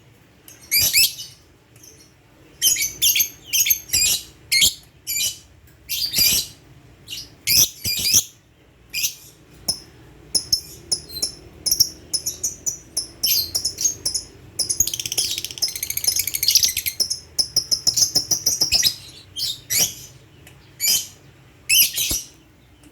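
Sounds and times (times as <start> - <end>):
lovebird chirping: 0.5 - 22.8.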